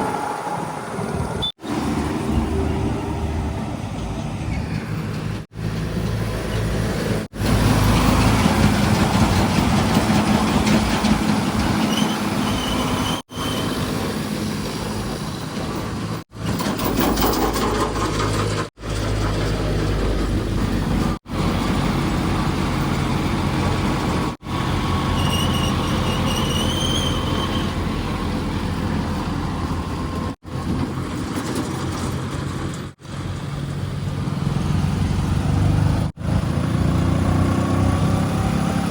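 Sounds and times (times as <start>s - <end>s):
heavy diesel engines running: 0.0s - 38.9s.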